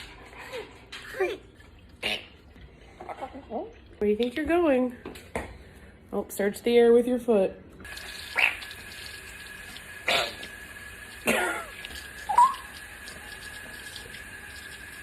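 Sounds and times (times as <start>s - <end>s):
parrot raspy calls: 8.3s - 8.7s, 12.2s - 12.8s
parrot whistle: 12.2s - 12.8s.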